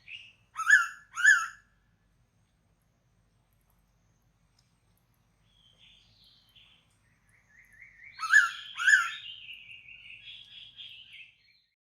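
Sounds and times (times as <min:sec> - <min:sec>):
faint bird chirps: 0:05.4 - 0:11.8.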